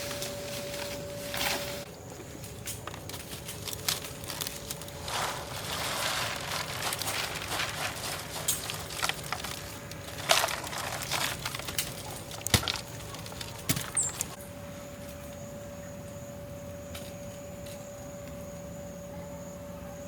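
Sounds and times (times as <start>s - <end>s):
rustling: 0.0s - 14.4s.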